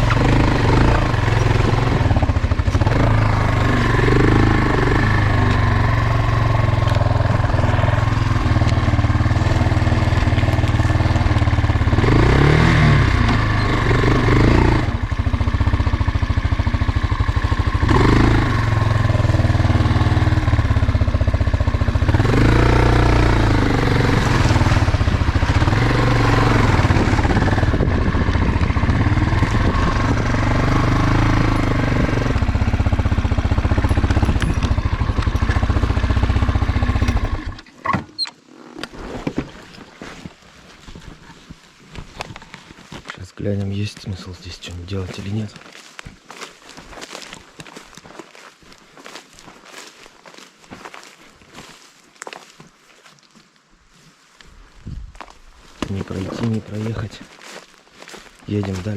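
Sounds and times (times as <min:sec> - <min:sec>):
motorcycle engine revving: 0:00.0 - 0:37.8.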